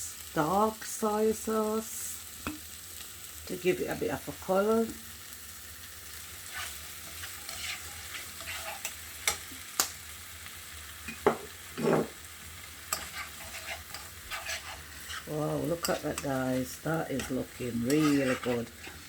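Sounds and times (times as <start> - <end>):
gravy sizzling in a pot: 0.0 - 19.0
spoon stirring: 6.5 - 9.4, 12.8 - 16.4, 17.1 - 19.0.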